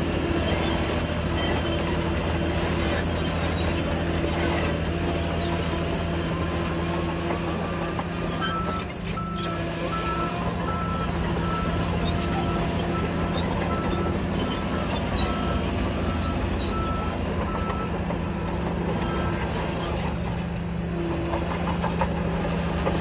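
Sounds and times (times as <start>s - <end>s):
crawler tracks clattering: 0.0s - 23.0s
heavy diesel machine running: 0.0s - 23.0s
reversing alarm beeping: 7.5s - 20.0s.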